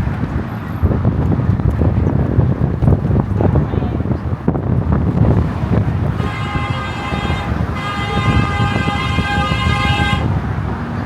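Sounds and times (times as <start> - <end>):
traffic rumble: 0.0 - 11.0
wind: 0.0 - 11.0
horn blasts: 6.0 - 10.6.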